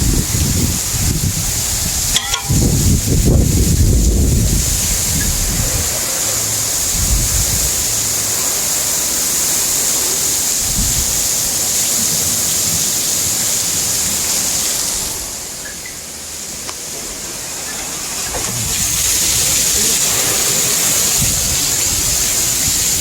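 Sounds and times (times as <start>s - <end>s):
strong wind rushing: 0.0s - 8.5s, 10.6s - 11.5s, 18.3s - 23.0s
wind gusts buffeting microphone: 0.0s - 9.5s, 10.5s - 12.9s, 18.2s - 23.0s.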